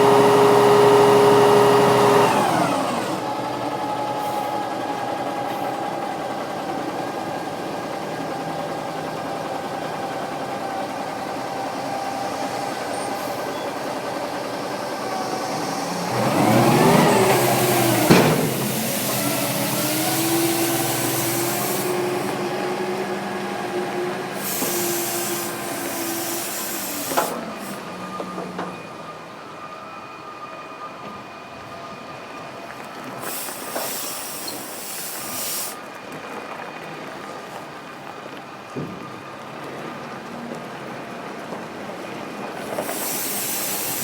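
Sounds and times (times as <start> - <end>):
truck diesel engine revving: 0.0 - 28.7
air hiss: 11.4 - 22.6, 24.2 - 28.0, 33.2 - 35.8, 42.6 - 44.0.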